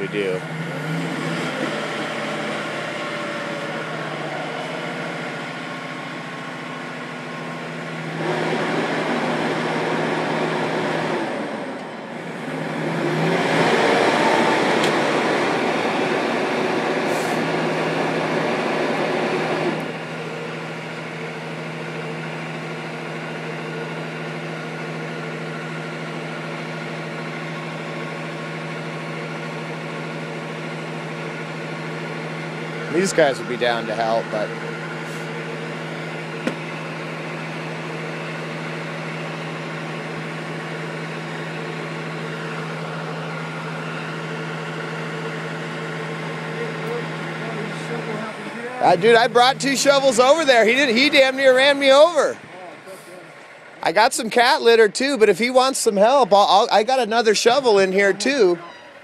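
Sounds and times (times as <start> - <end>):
truck engine revving: 0.0 - 59.0.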